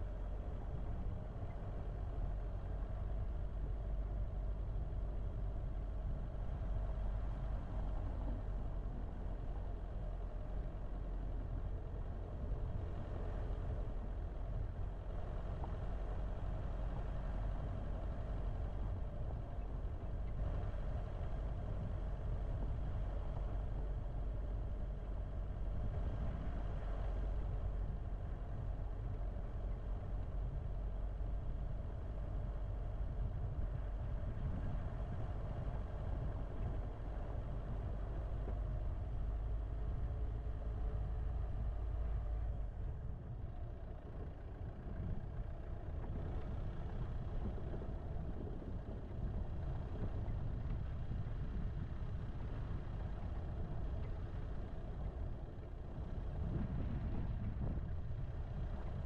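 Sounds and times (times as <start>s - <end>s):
car engine running: 0.0s - 59.0s.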